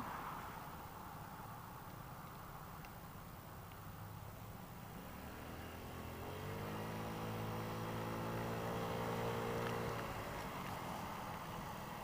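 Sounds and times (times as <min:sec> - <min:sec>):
scooter engine revving: 0:04.9 - 0:12.0.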